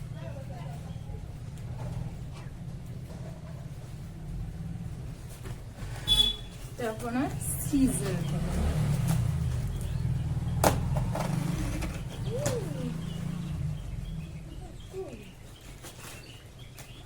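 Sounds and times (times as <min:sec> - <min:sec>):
vehicle engine rumble: 0:00.0 - 0:17.0
birds chirping faintly: 0:06.1 - 0:17.0.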